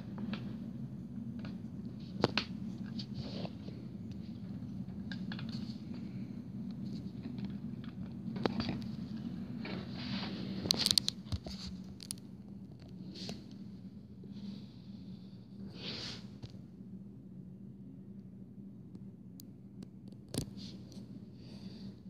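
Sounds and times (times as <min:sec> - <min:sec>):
steady low hum: 0:00.0 - 0:22.0
plastic packaging rustling and clicking: 0:10.5 - 0:13.0.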